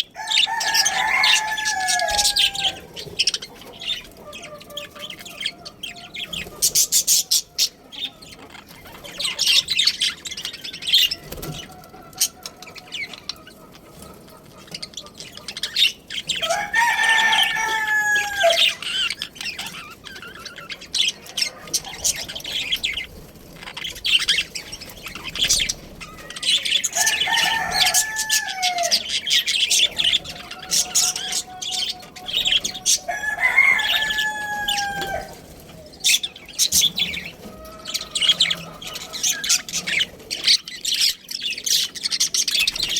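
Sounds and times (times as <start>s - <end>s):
small birds chirping: 0.0s - 42.9s
rooster crowing: 0.1s - 3.1s, 16.3s - 19.1s, 26.0s - 36.2s.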